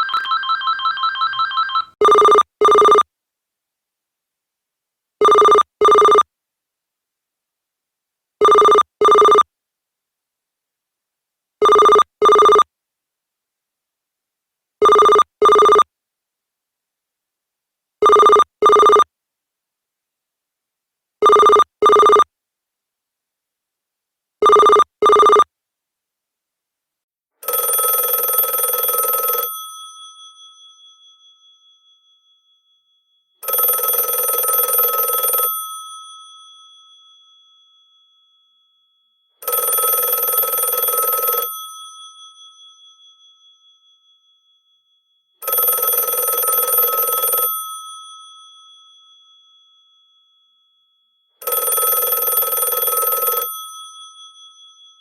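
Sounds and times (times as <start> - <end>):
mechanical telephone bell ringing: 0.0 - 3.0, 27.4 - 55.0
electronic telephone ring tone: 0.0 - 3.1, 5.2 - 6.3, 8.4 - 9.4, 11.6 - 12.7, 14.8 - 15.9, 18.0 - 19.1, 21.2 - 22.3, 24.4 - 25.5, 27.4 - 32.1, 32.7 - 37.9, 39.2 - 43.2, 45.4 - 49.0, 51.4 - 55.0.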